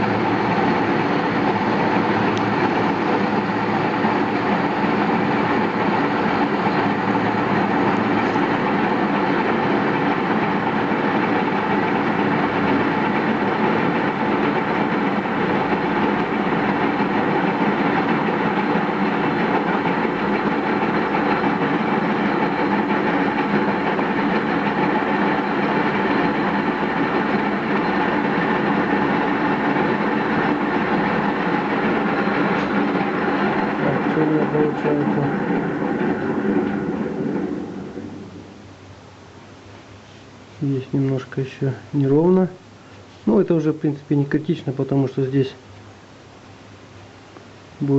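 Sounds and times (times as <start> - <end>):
lathe tool cutting steel: 0.0 - 38.0
metal lathe motor and gear hum: 0.0 - 38.7.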